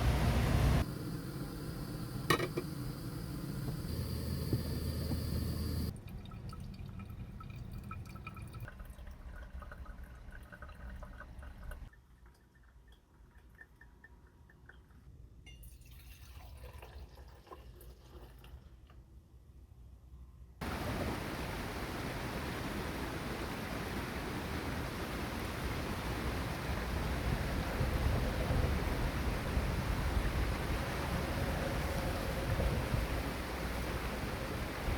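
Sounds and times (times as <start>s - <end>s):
liquid pouring into container: 5.9s - 14.8s, 15.6s - 18.8s.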